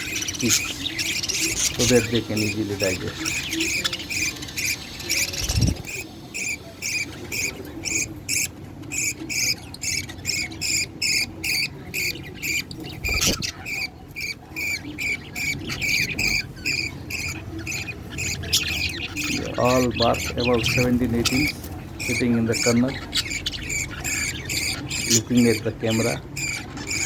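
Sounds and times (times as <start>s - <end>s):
budgie chicks cheeping: 0.0s - 27.0s.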